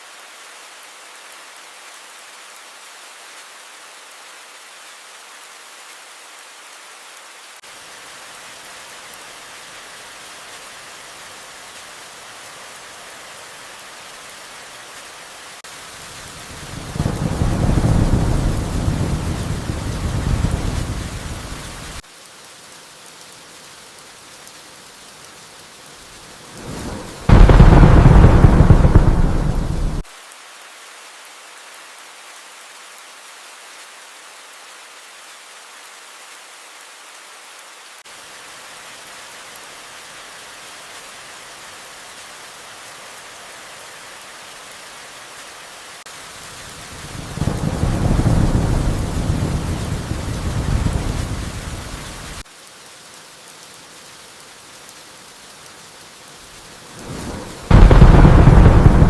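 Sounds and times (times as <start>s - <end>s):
steady rain: 0.0s - 59.0s
thunder rumbling: 16.8s - 22.0s, 26.6s - 30.0s, 47.2s - 52.2s, 57.0s - 59.0s
loud thunderclap: 26.6s - 30.0s, 57.3s - 59.0s.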